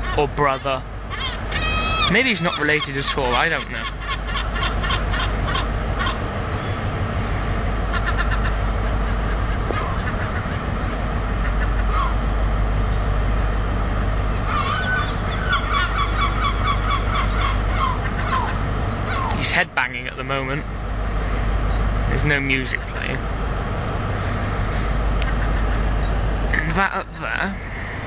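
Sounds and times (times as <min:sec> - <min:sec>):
seagulls calling: 0:00.0 - 0:28.0
steady low rumble: 0:00.0 - 0:28.0
high squeals: 0:00.8 - 0:10.1.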